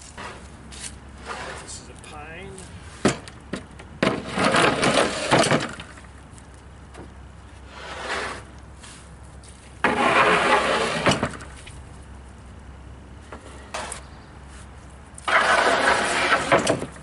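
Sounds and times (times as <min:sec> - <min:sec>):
wooden boards scraping and clattering: 0:00.0 - 0:01.8, 0:02.9 - 0:06.2, 0:07.0 - 0:09.0, 0:09.8 - 0:11.7, 0:13.3 - 0:14.1, 0:15.2 - 0:17.0.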